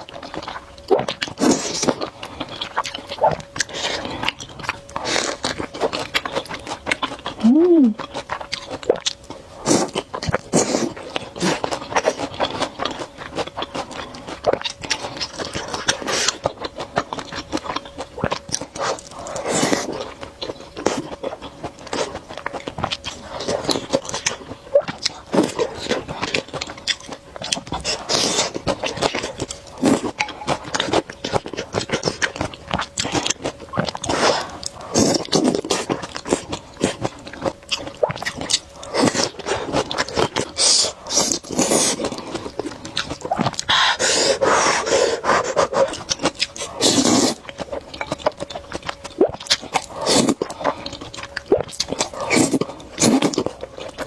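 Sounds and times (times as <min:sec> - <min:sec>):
person chewing: 0:00.1 - 0:54.0
slurping noodles: 0:38.9 - 0:42.6, 0:43.4 - 0:47.5, 0:49.2 - 0:50.7, 0:52.1 - 0:53.5.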